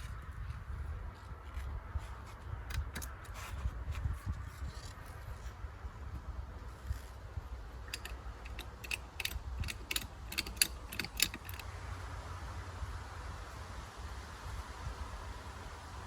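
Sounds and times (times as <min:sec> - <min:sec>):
sharp metallic clicks: 0:07.8 - 0:11.6.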